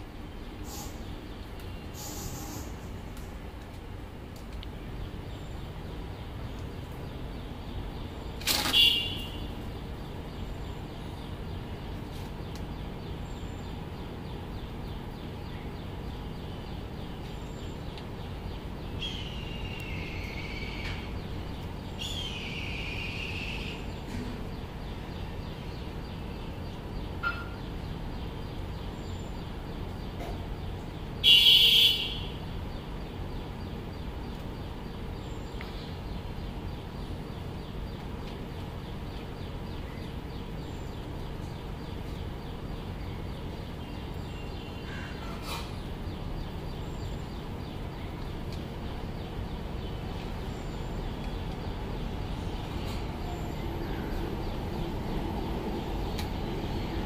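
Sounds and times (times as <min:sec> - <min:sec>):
steady low background noise: 0:00.0 - 0:57.0
bird calls: 0:00.5 - 0:03.0, 0:27.1 - 0:27.9, 0:39.2 - 0:57.0
loud harsh bird call: 0:00.6 - 0:01.1.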